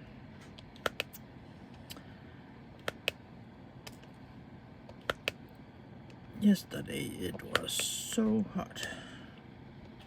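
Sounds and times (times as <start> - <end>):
electric fan humming: 0.0 - 10.0
small sharp clicks: 4.9 - 5.4.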